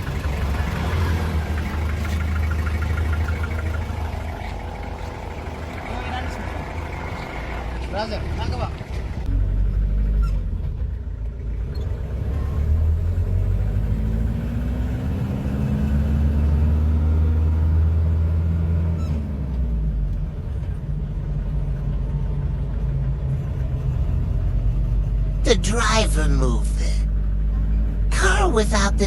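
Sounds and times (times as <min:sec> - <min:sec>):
car engine running: 0:00.0 - 0:12.2, 0:20.0 - 0:29.0.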